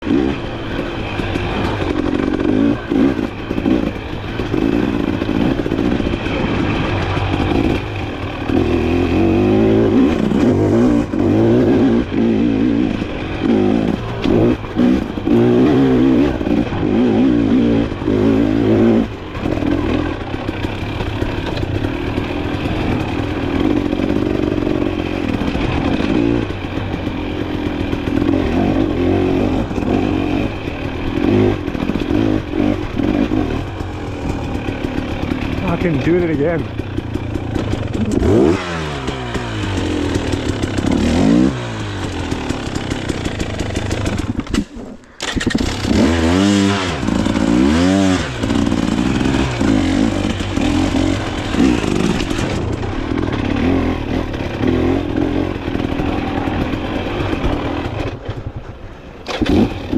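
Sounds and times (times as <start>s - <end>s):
dirt bike engine revving: 0.0s - 58.5s, 59.2s - 59.9s.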